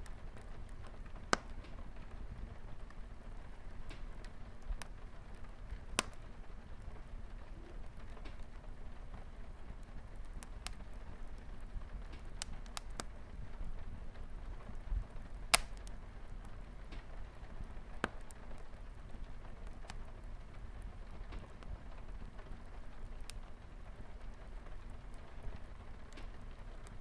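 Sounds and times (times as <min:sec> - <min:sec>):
light rain on a window: 0:00.0 - 0:27.0
wood fire crackling and popping: 0:00.0 - 0:27.0.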